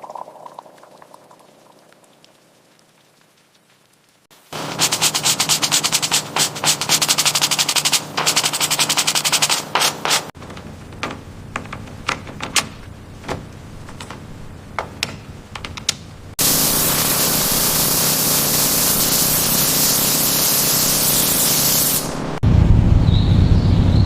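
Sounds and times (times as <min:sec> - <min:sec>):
high-pressure spray hissing: 0:04.4 - 0:10.4, 0:16.4 - 0:22.4.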